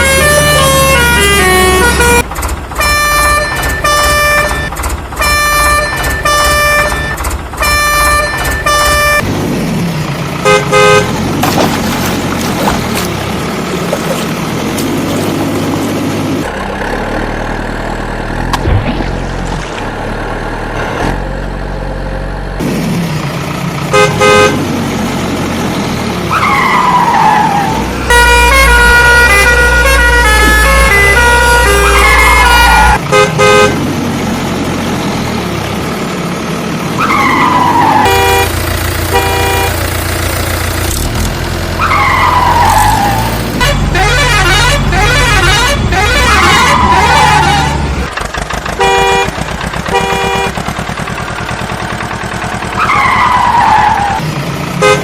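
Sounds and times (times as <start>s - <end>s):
cartoon horn honks: 0.0s - 2.2s, 2.8s - 9.2s, 10.4s - 11.1s, 23.9s - 24.6s, 28.1s - 33.8s, 37.0s - 40.0s, 43.6s - 47.8s, 48.8s - 50.6s, 54.8s - 55.0s.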